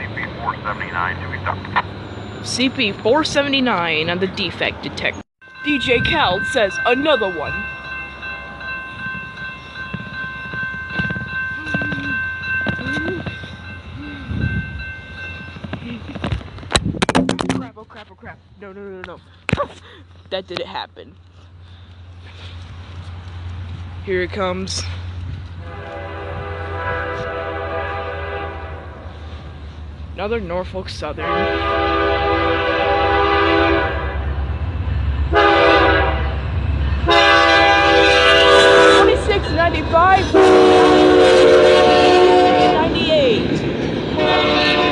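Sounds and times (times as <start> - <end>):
freight train rumbling: 0.0 - 19.4, 20.0 - 44.9
high-pitched ringing tones: 5.4 - 16.0
locomotive air horn blasts: 25.6 - 29.1, 31.2 - 34.2, 35.3 - 36.4, 37.0 - 43.1, 44.2 - 44.9.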